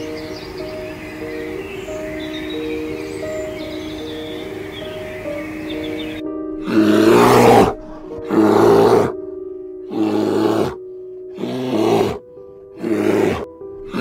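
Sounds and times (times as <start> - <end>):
light background music: 0.0 - 14.0
bear roaring: 6.6 - 9.2, 9.9 - 12.2, 12.8 - 14.0.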